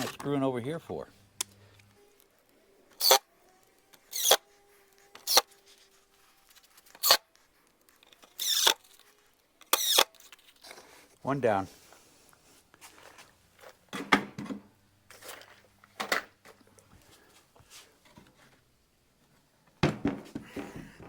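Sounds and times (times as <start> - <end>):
screws driven into wood: 2.9 - 3.3, 3.9 - 4.4, 5.1 - 5.6, 6.9 - 7.3, 8.0 - 9.0, 9.6 - 10.4.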